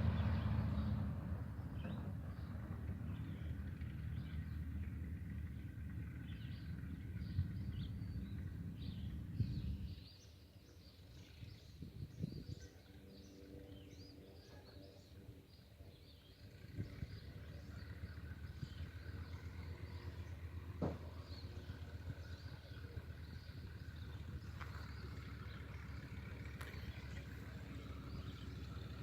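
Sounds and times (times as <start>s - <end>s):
small birds chirping: 1.6s - 29.0s.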